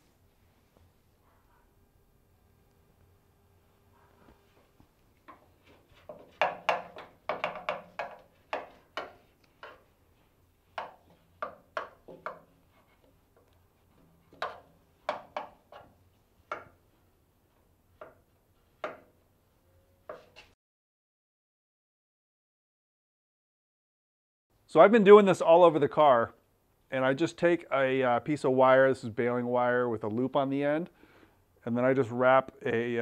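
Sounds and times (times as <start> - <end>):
metal rod tapping sheet metal: 6.3 - 9.8.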